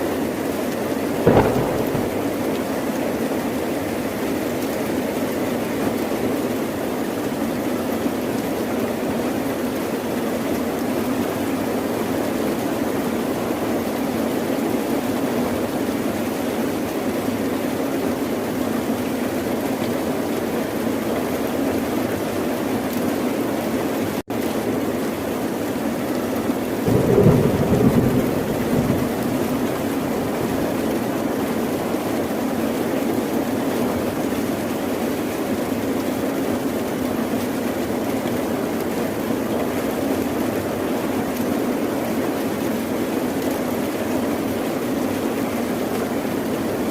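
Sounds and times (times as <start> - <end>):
steady rain: 0.0 - 46.9
thunder rumbling: 1.3 - 3.2, 26.9 - 31.4.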